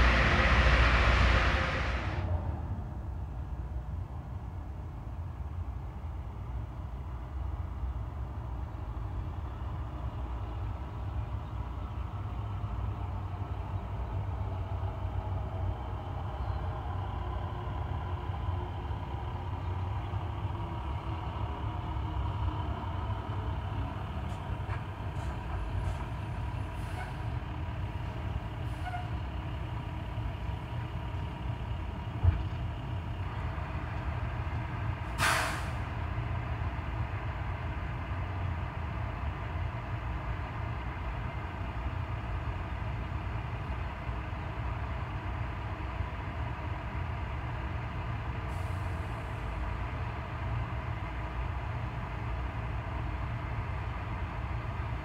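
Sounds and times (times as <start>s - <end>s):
train engine rumble: 0.0s - 55.0s.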